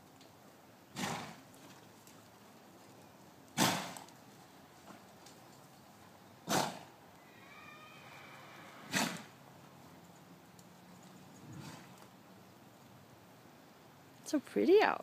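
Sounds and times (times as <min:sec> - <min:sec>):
horse snorting: 0:00.9 - 0:01.4, 0:03.6 - 0:04.1, 0:06.4 - 0:06.9, 0:08.6 - 0:09.4, 0:11.3 - 0:12.1.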